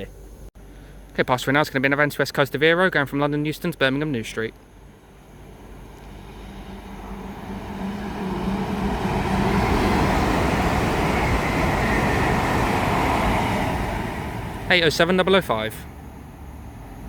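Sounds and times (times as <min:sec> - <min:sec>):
train passing at speed: 0:04.8 - 0:17.0.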